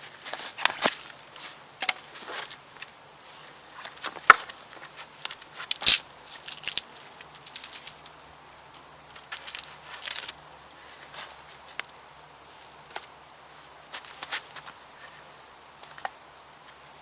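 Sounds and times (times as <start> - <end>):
dry twigs snapping: 3.8 - 10.4.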